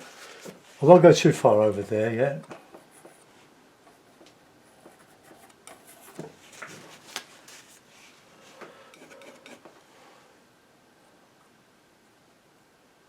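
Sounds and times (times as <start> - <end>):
painting knife scraping paint: 8.9 - 9.8.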